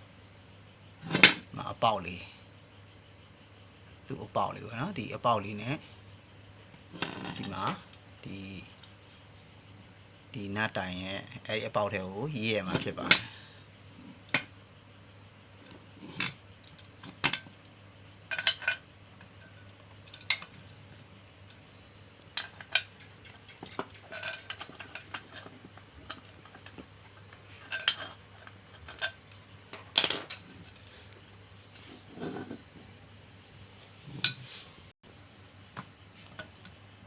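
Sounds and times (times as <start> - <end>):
metal parts clinking: 6.8 - 9.0, 15.6 - 17.7, 18.3 - 31.4, 33.6 - 34.6.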